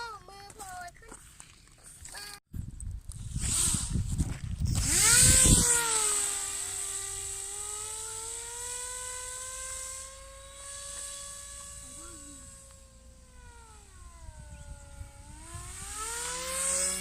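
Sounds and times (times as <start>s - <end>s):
wind buffeting microphone: 2.5s - 7.4s, 12.5s - 17.0s
propeller motor whining: 4.7s - 17.0s.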